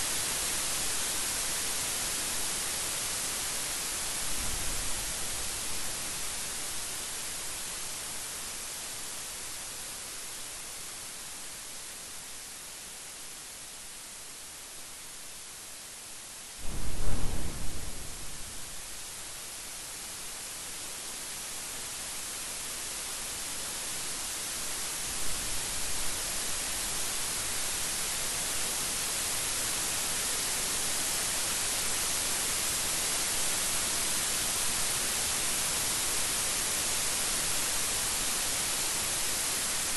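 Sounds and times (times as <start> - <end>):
heavy rain hiss: 0.0 - 39.9
thunderclap rumbling: 16.6 - 19.0
faint thunder rumble: 16.6 - 19.2.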